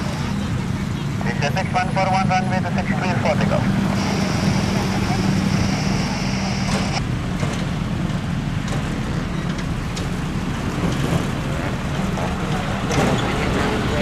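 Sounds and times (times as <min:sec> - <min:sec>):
jet engines running: 0:00.0 - 0:14.0
high whine and low hum: 0:01.3 - 0:07.1.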